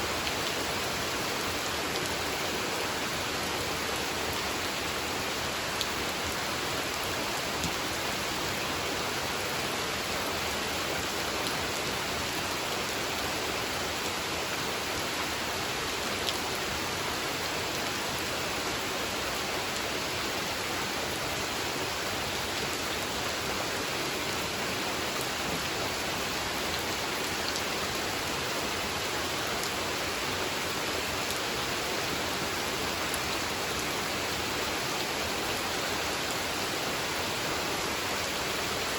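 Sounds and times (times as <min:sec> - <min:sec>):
rain falling on a pond: 0:00.0 - 0:38.9.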